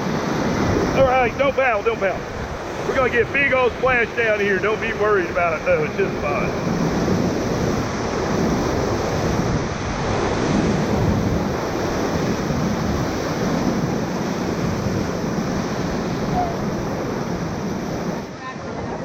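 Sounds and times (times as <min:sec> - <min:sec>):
whitewater rapids rushing: 0:00.0 - 0:19.0.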